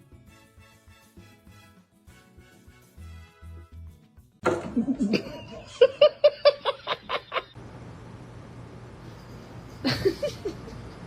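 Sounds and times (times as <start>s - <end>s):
person laughing: 4.6s - 7.6s, 9.8s - 10.7s.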